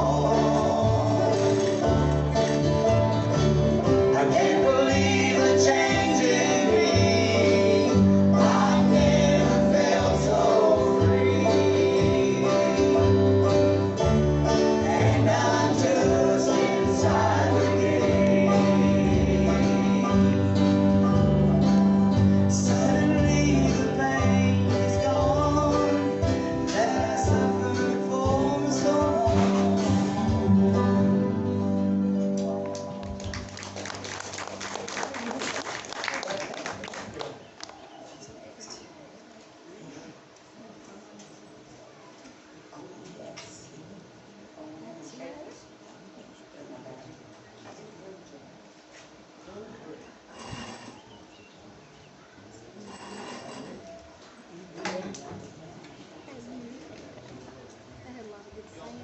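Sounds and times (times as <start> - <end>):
gospel group singing: 0.0 - 31.8
bass: 0.0 - 36.0
guitar: 0.0 - 36.0.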